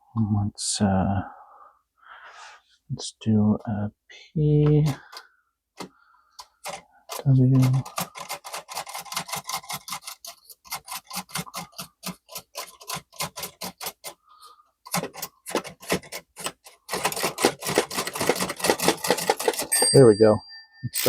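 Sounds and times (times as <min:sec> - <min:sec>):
typewriter keys clicking: 0:06.6 - 0:14.2, 0:14.9 - 0:19.9.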